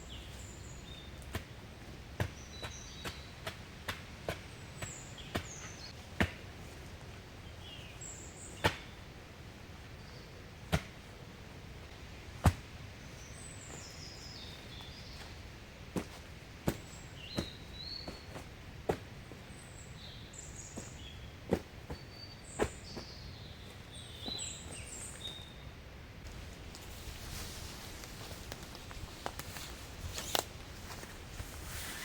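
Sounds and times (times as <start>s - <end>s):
small birds chirping: 0.0s - 6.0s, 7.4s - 9.1s, 12.9s - 25.8s.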